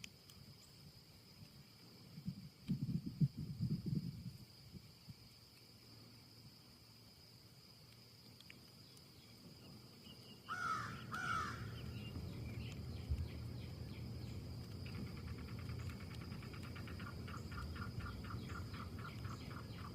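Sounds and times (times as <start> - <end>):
quick ticking bird calls: 10.1 - 19.9
steady low rumble: 11.6 - 19.9.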